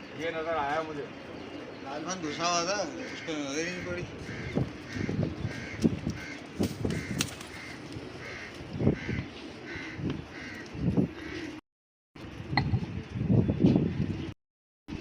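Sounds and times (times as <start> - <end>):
bird calling: 0.0 - 11.6.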